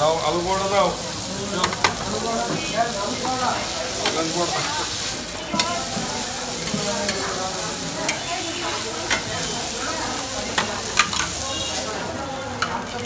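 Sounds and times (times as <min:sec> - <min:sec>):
meat sizzling on a griddle: 0:00.0 - 0:13.0
metal spatula scraping griddle: 0:02.6 - 0:12.0.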